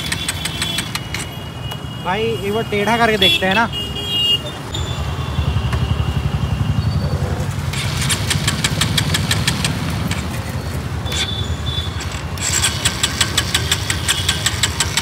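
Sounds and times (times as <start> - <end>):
motorcycle engine running roughly: 0.0 - 1.2, 5.0 - 15.0
rapid engine ticking: 0.0 - 1.3, 5.4 - 15.0.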